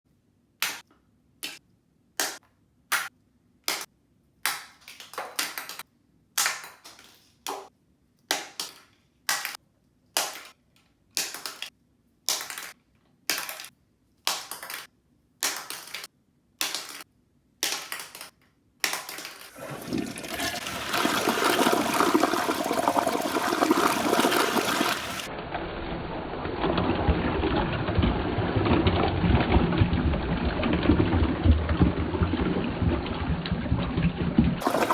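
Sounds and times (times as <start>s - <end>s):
toilet flushing: 19.5s - 25.3s, 26.4s - 34.9s.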